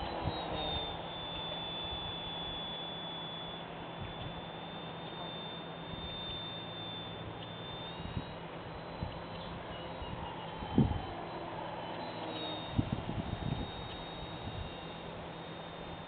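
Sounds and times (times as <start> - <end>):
model airplane motor whine: 0.0 - 16.0.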